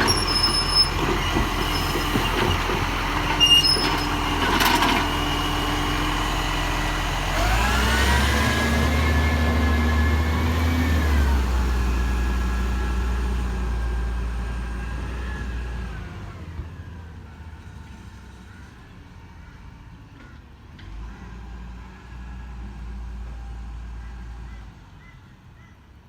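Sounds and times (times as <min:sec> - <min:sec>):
garbage truck diesel engine revving: 0:00.0 - 0:16.9.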